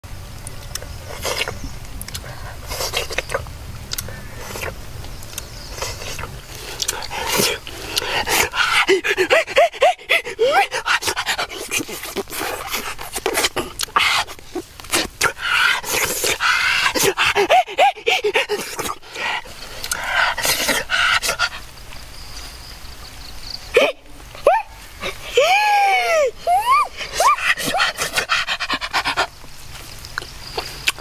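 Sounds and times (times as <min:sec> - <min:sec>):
dog panting: 0:06.9 - 0:13.3, 0:15.4 - 0:21.7, 0:27.5 - 0:29.4.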